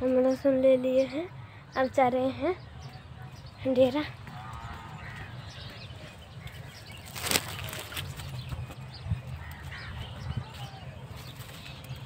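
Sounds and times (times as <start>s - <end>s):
faint birds calling: 0.0s - 12.0s
sharp crackle: 7.0s - 8.2s.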